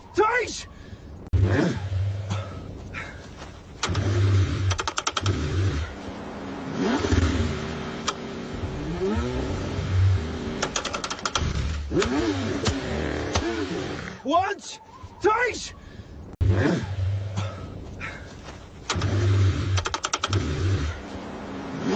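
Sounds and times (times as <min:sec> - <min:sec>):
car engine cranking: 0:03.7 - 0:06.0, 0:06.7 - 0:14.2, 0:18.8 - 0:21.9
rapid clicking: 0:03.8 - 0:05.4, 0:10.6 - 0:13.5, 0:18.9 - 0:20.6.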